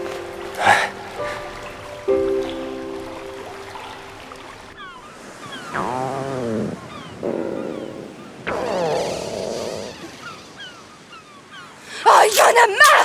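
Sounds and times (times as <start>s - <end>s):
steady background wash: 0.0s - 5.8s
small birds chirping: 0.0s - 12.8s
animal calls arching in pitch: 4.8s - 13.0s.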